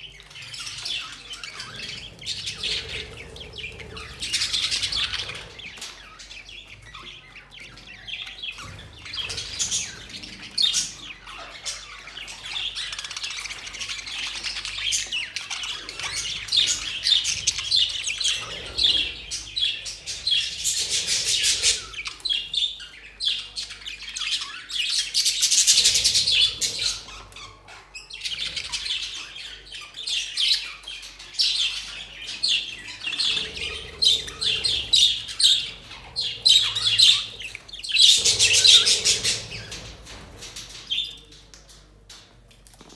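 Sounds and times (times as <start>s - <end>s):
budgerigars chirping and chattering: 0.0s - 42.9s.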